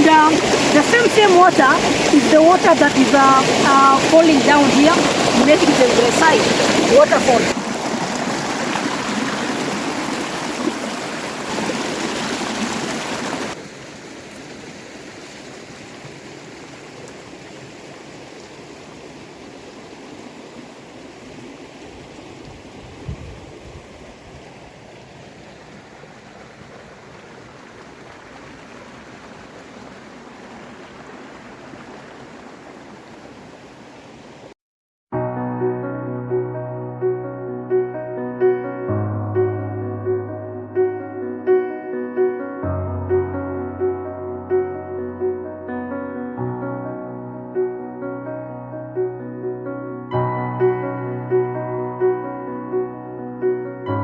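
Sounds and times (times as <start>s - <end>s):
stream water rushing: 0.0s - 34.6s.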